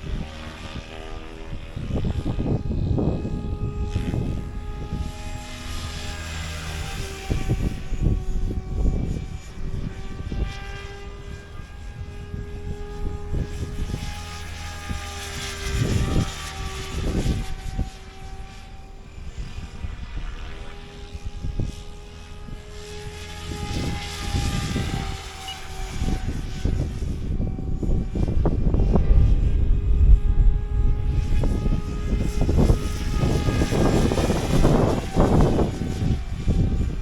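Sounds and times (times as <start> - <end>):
rc helicopter rotor whine: 0.0 - 37.0
low gusty rumbles: 23.6 - 37.0.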